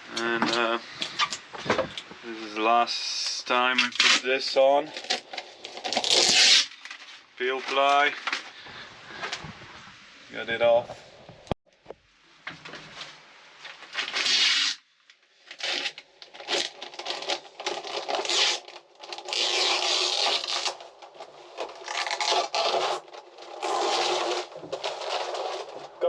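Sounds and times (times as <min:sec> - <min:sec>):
rubbing and scraping: 0:15.5 - 0:26.0.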